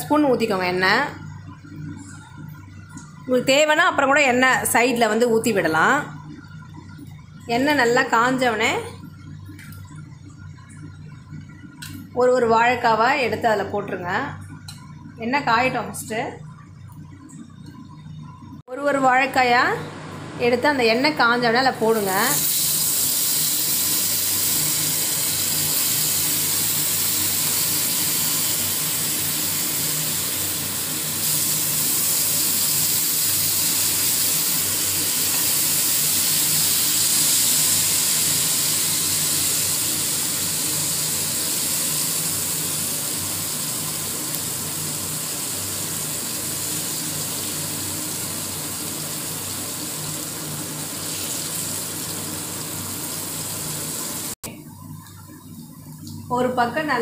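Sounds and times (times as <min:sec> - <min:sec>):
banana slices sizzling in hot oil: 0:22.0 - 0:54.4.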